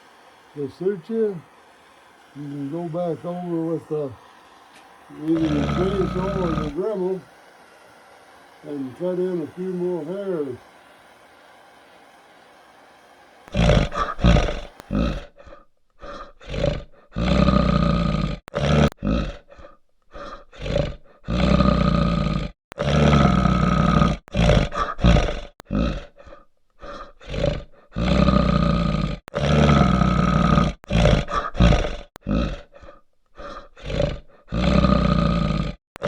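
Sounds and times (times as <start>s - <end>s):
bear roaring: 1.4s - 7.8s, 13.4s - 35.8s.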